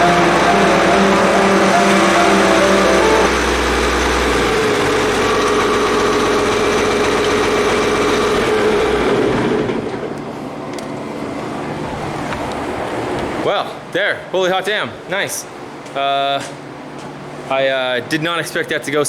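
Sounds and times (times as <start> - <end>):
hay baler and engine running: 0.0 - 10.5.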